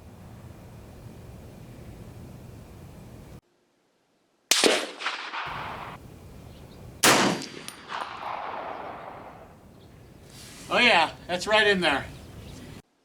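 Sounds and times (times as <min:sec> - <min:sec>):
rifle shots echoing: 0:04.5 - 0:06.1, 0:07.0 - 0:09.6.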